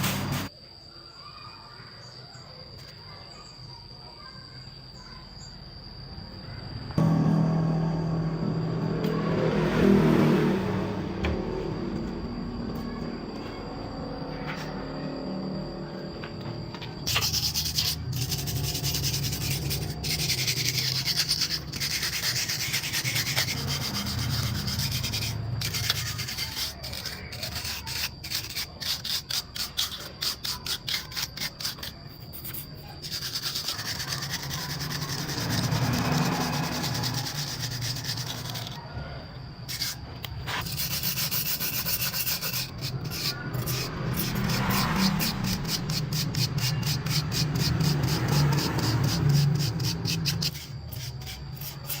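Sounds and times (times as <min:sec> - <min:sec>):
hand sanding on metal part: 0:00.0 - 0:00.5, 0:17.0 - 0:38.8, 0:39.7 - 0:52.0.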